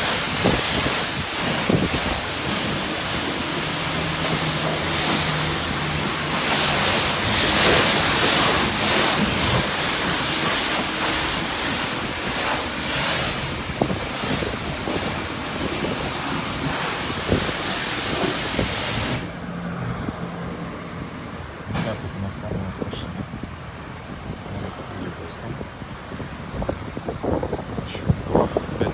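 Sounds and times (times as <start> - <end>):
pressure washer spraying car: 0.0 - 19.6, 21.7 - 22.1.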